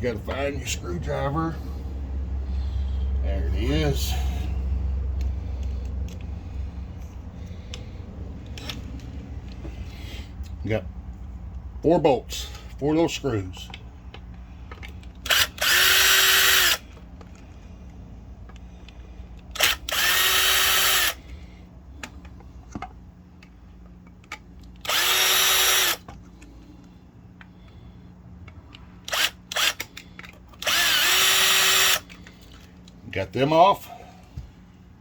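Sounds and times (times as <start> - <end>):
power drill whirring: 15.1 - 17.1, 19.4 - 21.4, 24.7 - 26.1, 29.0 - 32.6.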